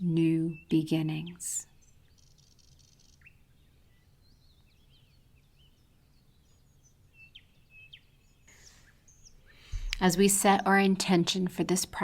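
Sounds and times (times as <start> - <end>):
bird chirps: 0.4 - 10.3
low steady hum: 9.7 - 12.0.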